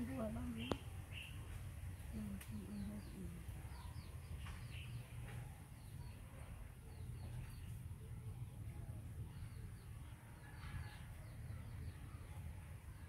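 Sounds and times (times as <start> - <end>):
faint bird chirps: 0.0 - 8.5.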